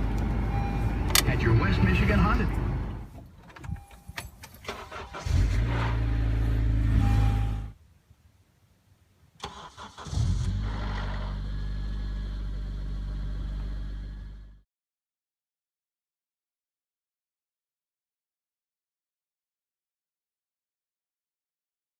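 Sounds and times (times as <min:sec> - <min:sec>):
car engine cranking and running: 0:00.0 - 0:07.7, 0:09.4 - 0:14.6.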